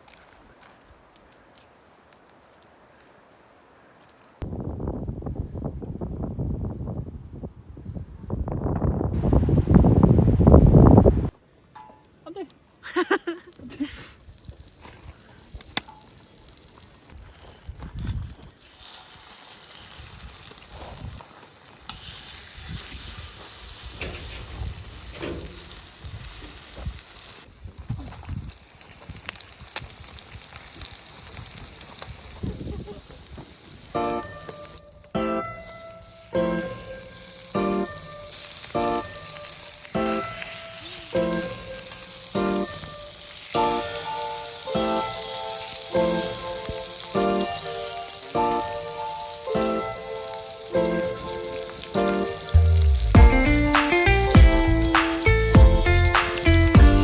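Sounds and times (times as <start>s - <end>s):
food sizzling in oil: 13.0s - 17.2s, 18.3s - 34.8s, 35.7s - 57.0s
background music of pitched notes: 34.0s - 57.0s.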